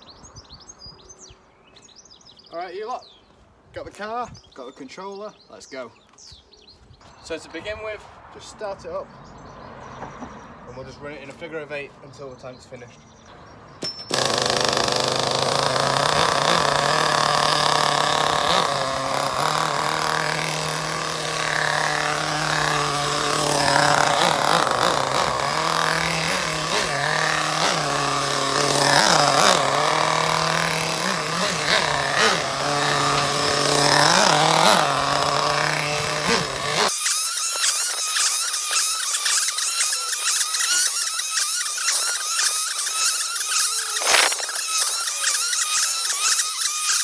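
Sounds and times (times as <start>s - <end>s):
model nitro engine buzzing: 13.8s - 47.0s.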